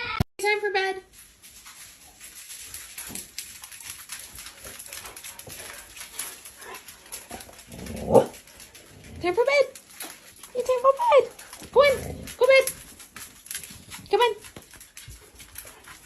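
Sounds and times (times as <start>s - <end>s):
dog clicks and shuffling: 1.0s - 16.0s
dog vocalisation: 6.6s - 14.1s.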